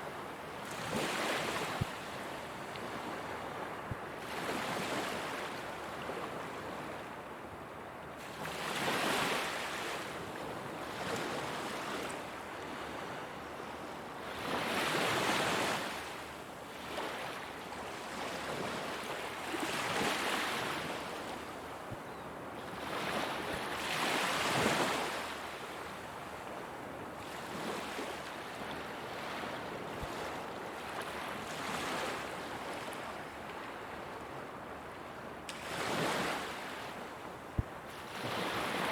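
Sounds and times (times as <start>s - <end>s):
ocean waves breaking on beach: 37.9s - 38.9s.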